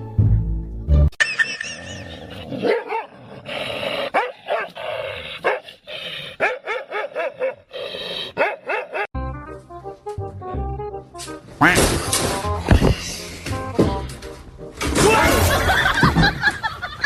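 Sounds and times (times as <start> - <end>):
dog barking: 2.6 - 3.1, 4.1 - 4.8, 5.4 - 5.7, 6.4 - 7.7, 8.4 - 9.1.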